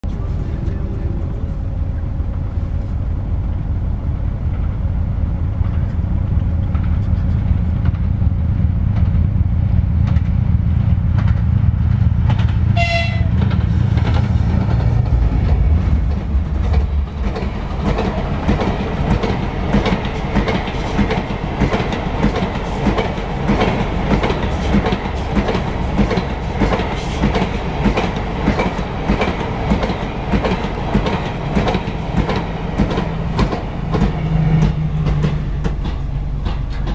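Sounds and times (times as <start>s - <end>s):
locomotive rumble: 0.0s - 36.9s
train wheels clattering on rails: 5.5s - 36.9s
train horn blast: 12.8s - 13.4s.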